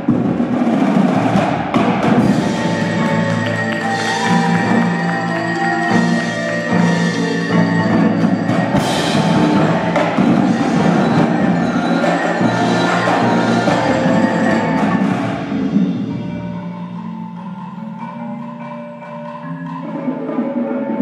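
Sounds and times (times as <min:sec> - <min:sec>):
rapid drum strikes: 0:00.0 - 0:16.8
ringing mallet keyboards: 0:02.2 - 0:21.0.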